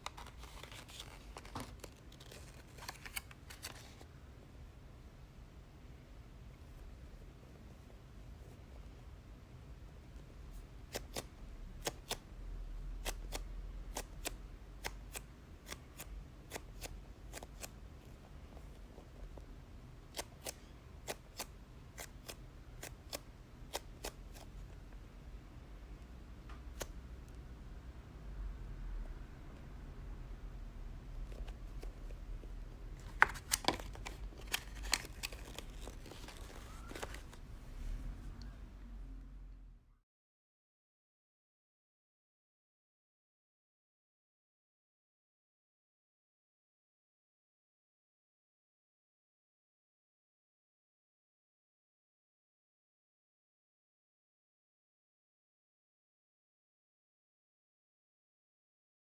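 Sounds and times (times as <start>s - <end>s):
low steady hum: 0.0s - 40.0s
squishy toy clicks and crinkles: 33.0s - 37.4s.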